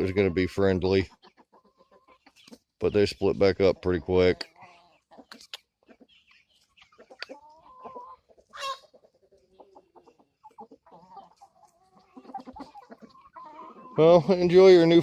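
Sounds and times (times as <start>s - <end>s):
hens clucking: 0.0s - 15.0s
high-pitched hen call: 7.2s - 8.9s.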